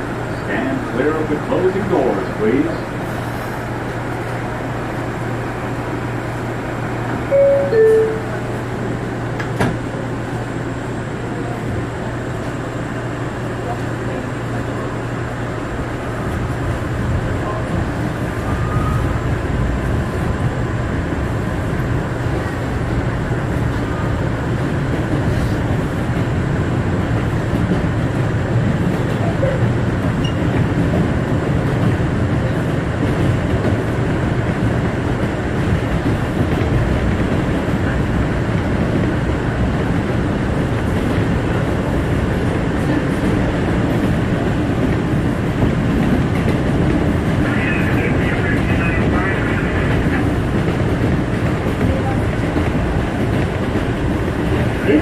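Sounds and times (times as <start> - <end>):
subway wheels rumbling on rail: 0.0 - 55.0.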